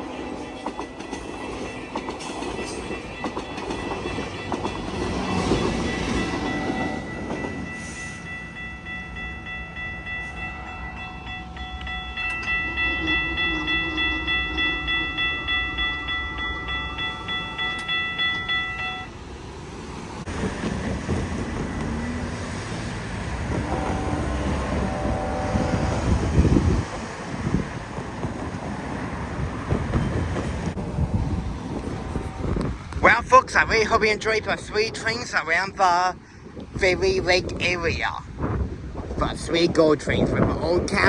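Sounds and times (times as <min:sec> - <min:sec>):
train wheels on rails: 0:00.0 - 0:39.4
diesel locomotive rumbling: 0:00.0 - 0:41.0
pulsing ringing tone: 0:05.4 - 0:19.1.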